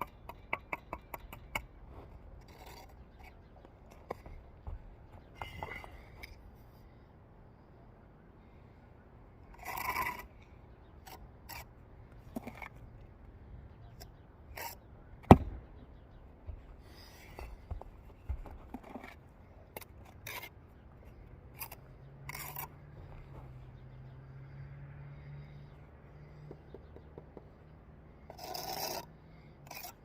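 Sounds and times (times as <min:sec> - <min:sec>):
trowel scraping mortar on brick: 0:00.0 - 0:06.2, 0:09.5 - 0:10.4, 0:11.0 - 0:12.8, 0:14.1 - 0:14.8, 0:16.5 - 0:23.6, 0:28.2 - 0:30.0.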